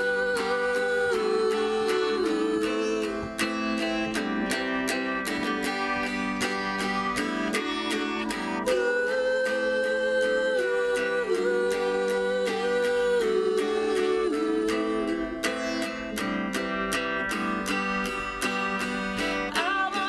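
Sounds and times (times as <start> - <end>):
acoustic guitar strumming: 0.0 - 20.0
sustained melody notes: 13.7 - 19.6.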